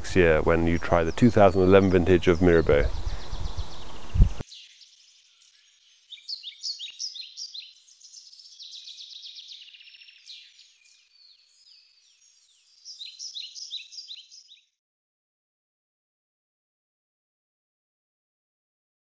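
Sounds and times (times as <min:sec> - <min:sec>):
songbird chirping: 0:00.0 - 0:14.7.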